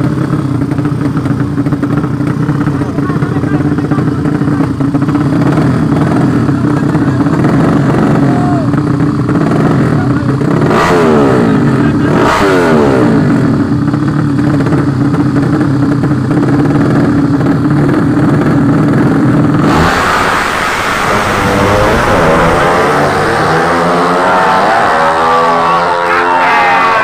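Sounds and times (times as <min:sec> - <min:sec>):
motorcycle engines running loudly: 0:00.0 - 0:27.0
motorcycles passing by: 0:20.6 - 0:27.0.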